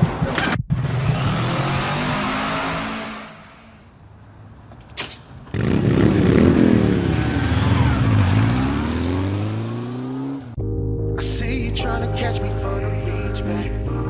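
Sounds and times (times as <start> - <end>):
motorcycle engine accelerating: 0.3 - 3.4, 5.5 - 10.6.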